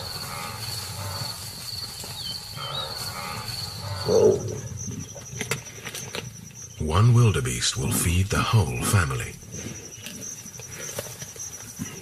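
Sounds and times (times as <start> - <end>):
insects trilling: 0.0 - 12.0
short insect chirp: 0.0 - 12.0
loud animal call: 2.3 - 5.0.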